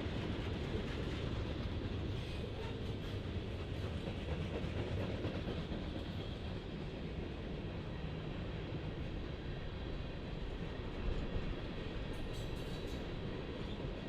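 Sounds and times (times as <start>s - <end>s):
train cars rolling on rails: 0.0s - 14.0s.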